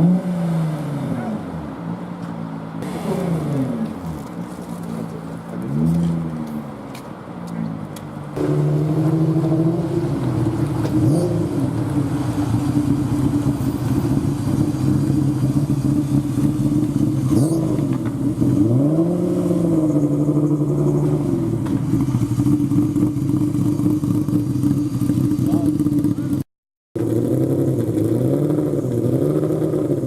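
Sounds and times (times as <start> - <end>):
car engine running: 7.8 - 26.4.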